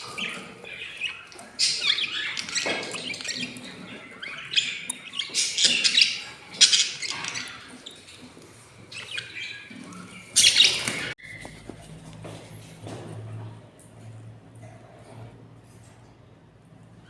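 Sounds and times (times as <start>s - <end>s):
budgerigars chirping and chattering: 0.0s - 11.6s.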